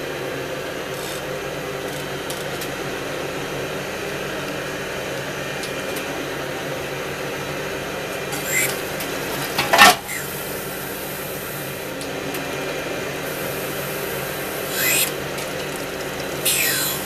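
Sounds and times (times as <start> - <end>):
surface grinder humming: 8.3 - 8.9, 10.0 - 10.6, 13.4 - 17.0.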